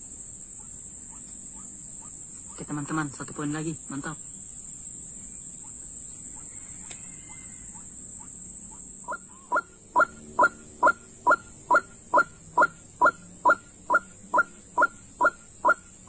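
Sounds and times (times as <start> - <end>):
high insect hiss: 0.0 - 16.0.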